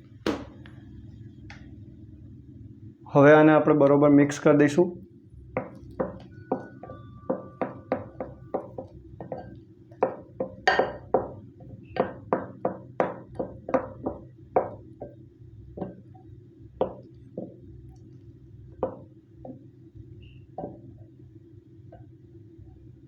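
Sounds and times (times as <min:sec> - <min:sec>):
spoon knocking and scraping bowl: 0:05.6 - 0:15.2, 0:16.8 - 0:17.7, 0:18.8 - 0:19.6.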